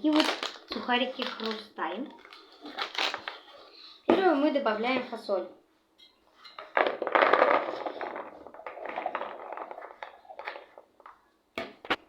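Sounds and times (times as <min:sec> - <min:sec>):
beans spilling into a bowl: 0:06.8 - 0:10.8.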